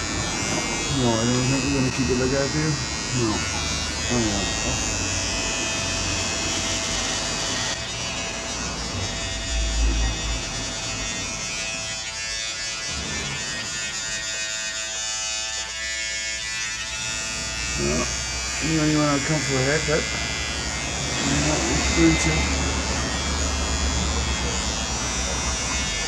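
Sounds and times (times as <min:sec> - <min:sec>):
electric hair clippers buzzing: 0:00.0 - 0:26.0
low bump: 0:08.8 - 0:12.2.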